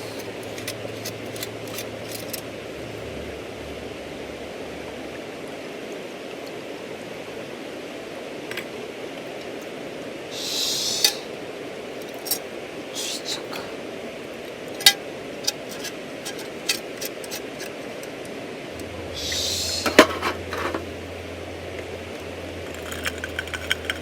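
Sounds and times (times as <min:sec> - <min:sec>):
river rushing: 0:00.0 - 0:24.0
short hiss ending in click: 0:10.4 - 0:11.3, 0:13.0 - 0:13.7.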